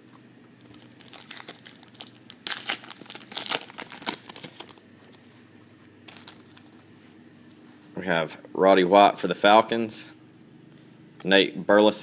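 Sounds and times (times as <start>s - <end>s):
plastic wrapper tearing and crinkling: 0.7s - 4.8s, 6.1s - 6.8s.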